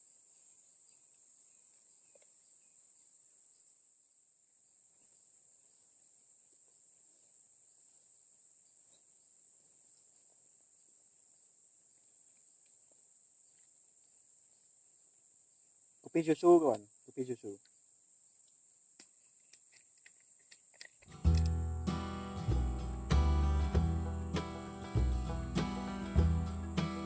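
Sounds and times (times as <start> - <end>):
high-pitched insect chorus: 13.4 - 27.0.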